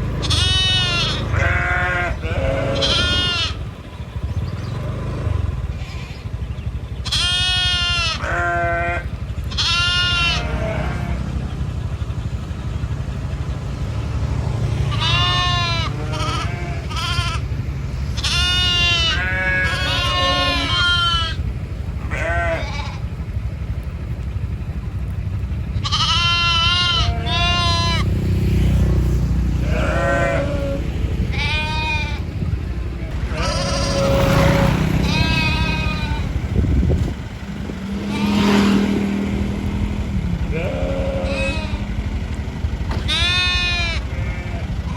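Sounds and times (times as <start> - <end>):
low rumble: 0.0 - 44.9
livestock bleating: 0.1 - 3.7, 5.7 - 6.3, 7.0 - 11.4, 14.8 - 23.2, 25.8 - 28.8, 29.5 - 32.4, 33.0 - 36.5, 38.0 - 38.9, 40.2 - 42.2, 42.9 - 44.9.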